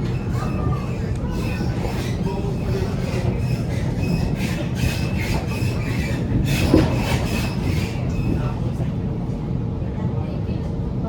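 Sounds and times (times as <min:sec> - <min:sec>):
faint wheel squeal: 0:00.0 - 0:09.3
rattling clatter: 0:00.0 - 0:09.4
train wheels rumbling on rail: 0:00.0 - 0:11.0.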